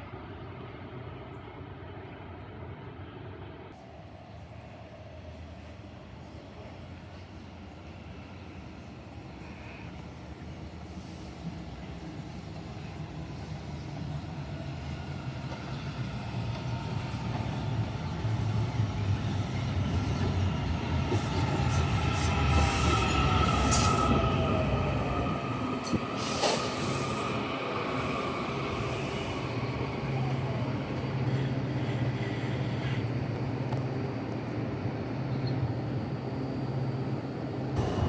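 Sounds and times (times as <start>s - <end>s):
train wheels squealing: 6.4s - 33.5s.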